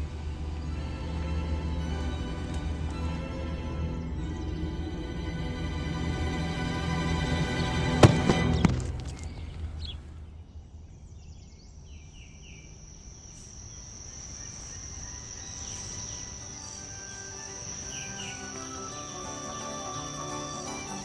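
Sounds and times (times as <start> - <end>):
high insect trill: 12.5 - 21.0.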